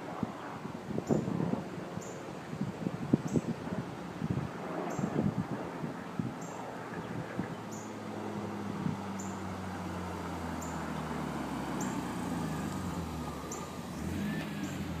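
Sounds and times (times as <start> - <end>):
distant car engine idling low: 7.7 - 15.0.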